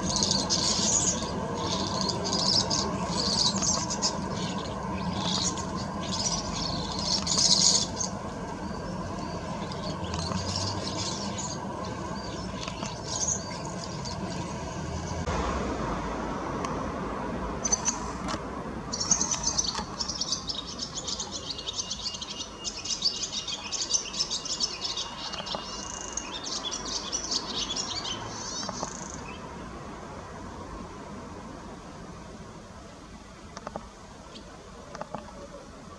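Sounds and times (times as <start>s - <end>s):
small birds chirping: 0.0s - 15.3s, 17.6s - 18.2s, 18.9s - 29.6s.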